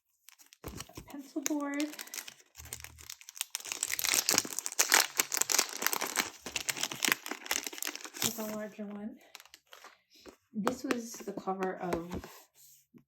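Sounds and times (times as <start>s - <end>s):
plastic packaging crinkling: 0.2s - 10.0s.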